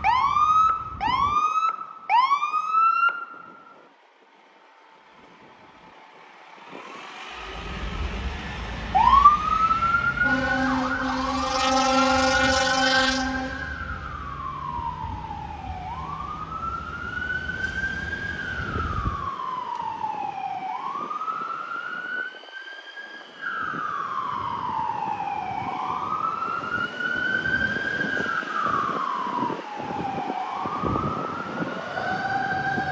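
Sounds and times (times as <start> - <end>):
siren wailing: 0.0 - 3.6, 7.4 - 32.9
heavy engine rumble: 6.9 - 19.3, 30.7 - 32.9
steady horn blast: 7.4 - 14.5.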